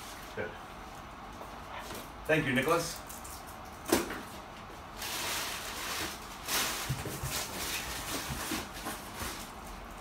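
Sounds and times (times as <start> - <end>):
paper and cardboard rustling: 5.0 - 9.7.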